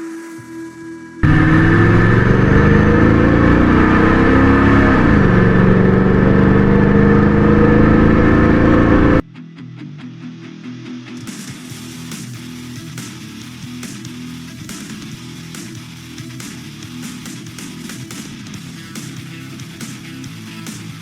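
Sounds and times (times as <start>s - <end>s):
pickup truck engine accelerating: 1.2s - 9.2s.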